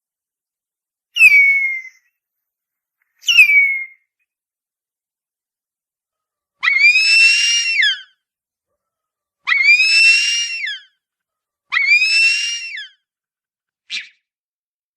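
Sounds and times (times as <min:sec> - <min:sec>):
eagle wailing screams: 0:06.6 - 0:08.2, 0:09.4 - 0:10.9, 0:11.7 - 0:13.0.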